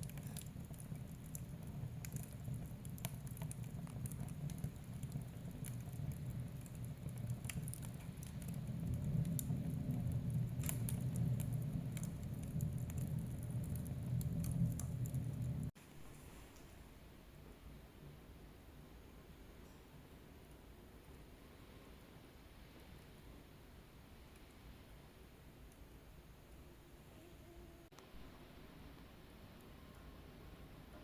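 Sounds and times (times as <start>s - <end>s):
wood fire crackling and popping: 0.0s - 15.8s.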